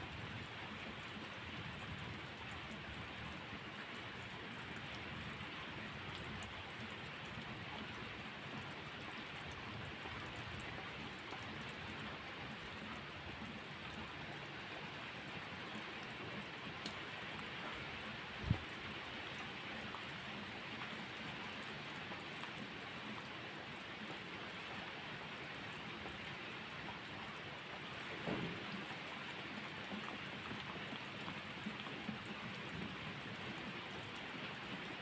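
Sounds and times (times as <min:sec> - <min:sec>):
steady rain falling: 0:00.0 - 0:35.0
faint clicks: 0:16.8 - 0:17.0.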